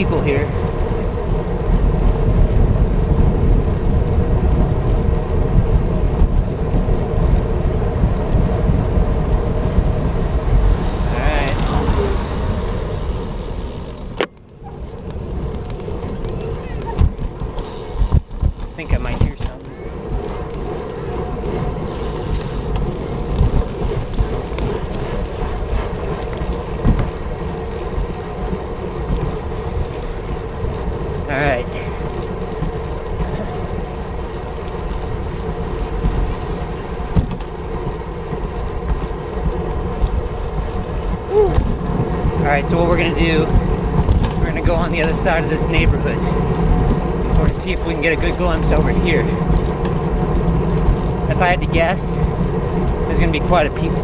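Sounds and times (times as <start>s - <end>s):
wind buffeting microphone: 0.0s - 54.0s
steady hum: 10.4s - 14.6s.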